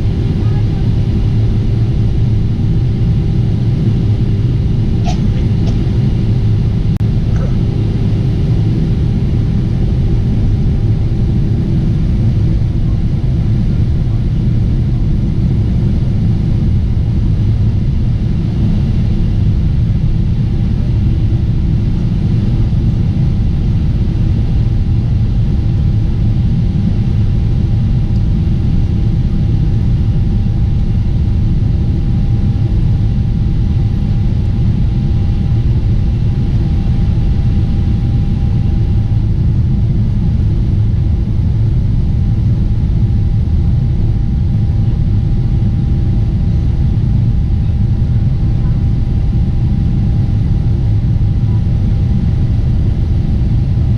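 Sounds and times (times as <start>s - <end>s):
airliner engine rumble in cabin: 0.0s - 53.9s.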